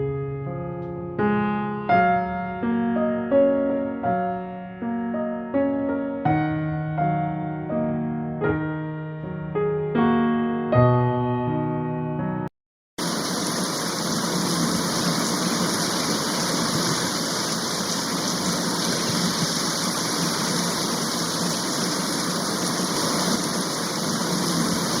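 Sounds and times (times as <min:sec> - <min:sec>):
heavy rain rushing: 0:13.0 - 0:25.0.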